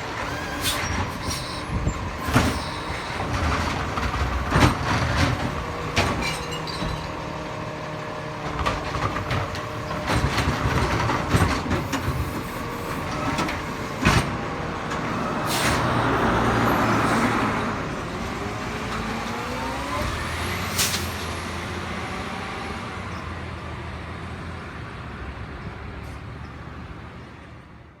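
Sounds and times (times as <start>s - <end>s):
garbage truck engine running: 0.0s - 22.1s.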